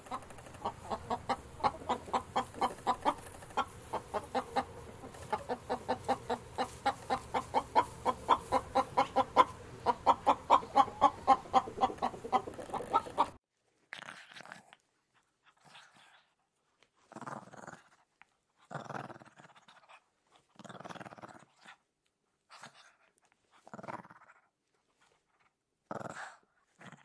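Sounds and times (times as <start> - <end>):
chickens clucking: 0.0 - 13.4.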